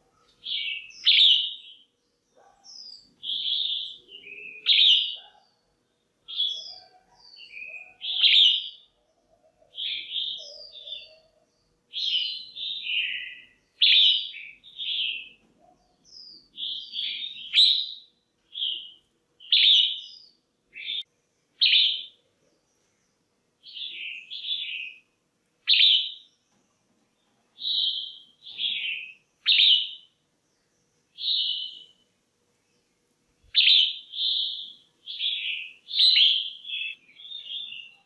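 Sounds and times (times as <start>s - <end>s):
bulbul chirping calls: 0.4s - 1.8s, 16.6s - 20.2s, 25.7s - 26.3s, 31.2s - 31.9s, 33.5s - 38.0s.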